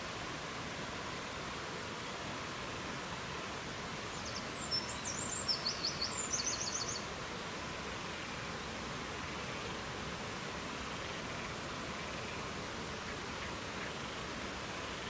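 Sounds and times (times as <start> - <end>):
songbird singing with trill: 4.1 - 7.1.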